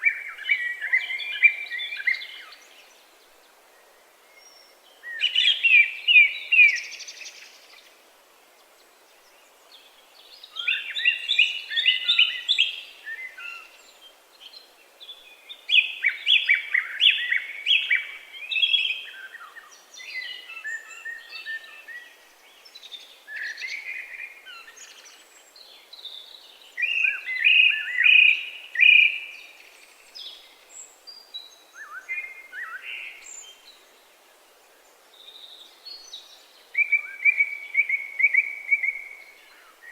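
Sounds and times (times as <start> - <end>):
faint bird chirps: 9.1 - 34.0, 34.7 - 39.9.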